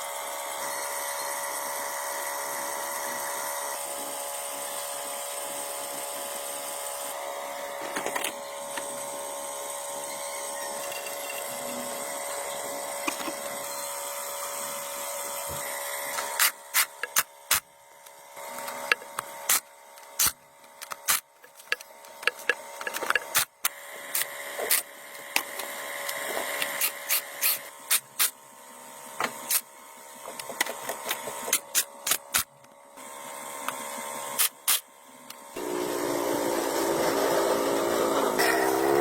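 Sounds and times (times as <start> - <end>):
small motorised tool running: 0.0 - 39.0
tools clicking and knocking: 16.2 - 17.6, 18.6 - 23.6.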